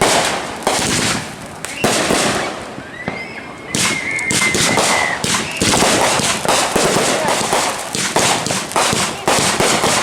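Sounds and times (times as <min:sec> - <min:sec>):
rapid crackling pops: 0:00.0 - 0:02.5, 0:03.8 - 0:10.0
firework bang: 0:00.0 - 0:10.0
firework high whistle: 0:01.0 - 0:06.6.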